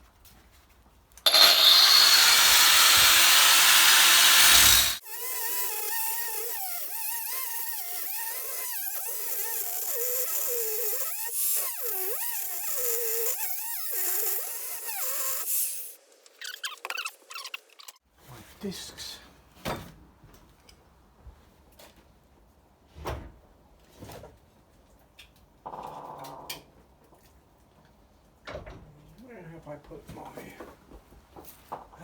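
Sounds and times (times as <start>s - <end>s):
angle grinder cutting metal: 1.3s - 15.9s.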